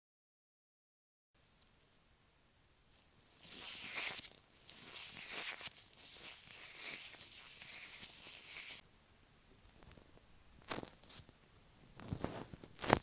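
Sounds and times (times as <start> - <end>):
gloved fingers rubbing a microphone: 3.3 - 8.8.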